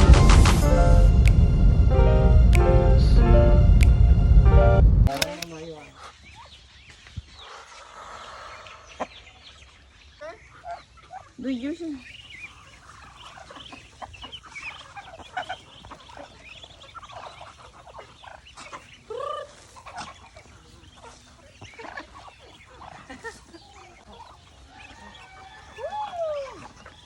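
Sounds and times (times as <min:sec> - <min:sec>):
chickens clucking: 0:05.1 - 0:27.0
chicken squawks: 0:07.4 - 0:27.0.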